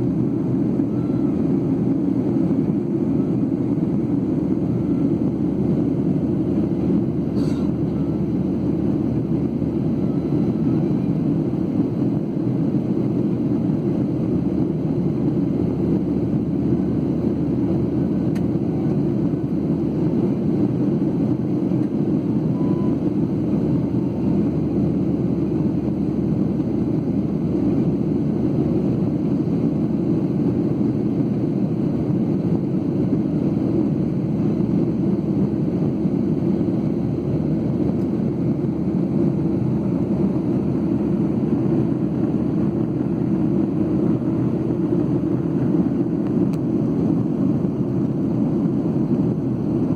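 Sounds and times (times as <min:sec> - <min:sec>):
airplane cabin drone: 0:00.0 - 0:49.9.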